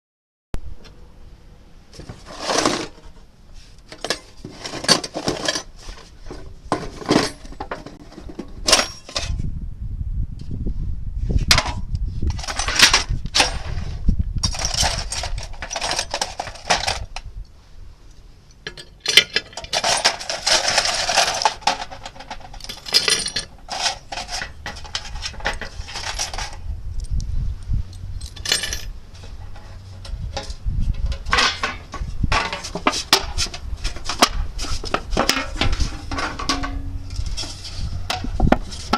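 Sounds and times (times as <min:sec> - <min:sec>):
metal tin clinking and clattering: 0:03.9 - 0:09.4, 0:11.5 - 0:17.2, 0:18.7 - 0:26.6, 0:28.2 - 0:38.9.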